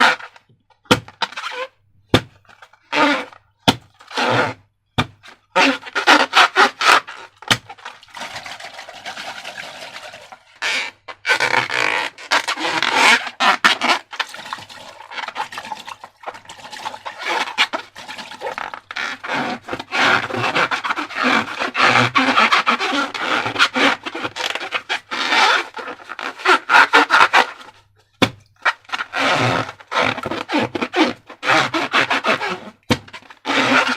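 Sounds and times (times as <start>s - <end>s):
slime squishing and stirring: 7.3s - 11.0s, 12.0s - 20.1s.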